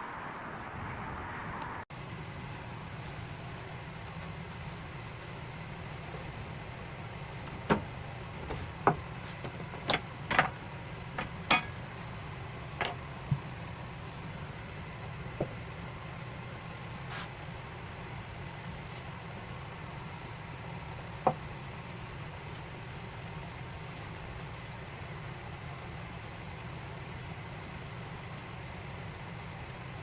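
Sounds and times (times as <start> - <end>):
steady low hum: 0.0 - 29.4
hard objects clicking and knocking: 7.4 - 12.1.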